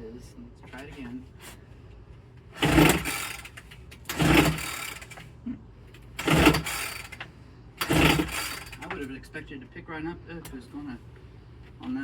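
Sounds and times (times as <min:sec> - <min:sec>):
recoil starter cranking engine: 0:02.5 - 0:05.3, 0:06.1 - 0:09.1.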